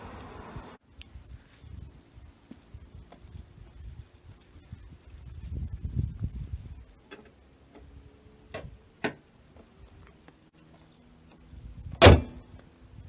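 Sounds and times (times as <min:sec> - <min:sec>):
loud slam with ring: 0:12.0 - 0:12.4.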